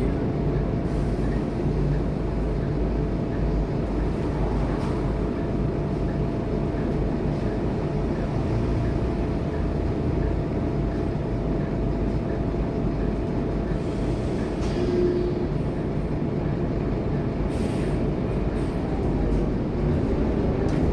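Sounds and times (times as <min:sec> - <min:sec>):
bus diesel engine running: 0:00.0 - 0:20.9
road noise: 0:01.6 - 0:11.4.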